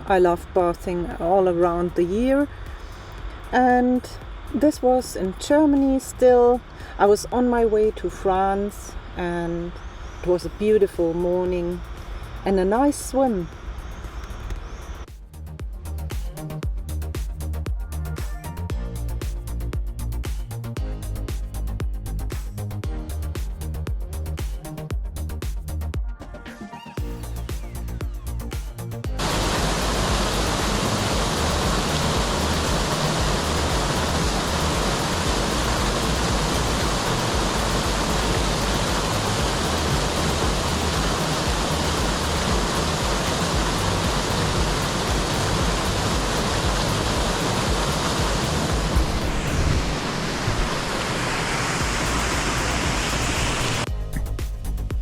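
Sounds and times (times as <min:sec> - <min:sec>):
rushing flowing water: 0:29.2 - 0:53.9.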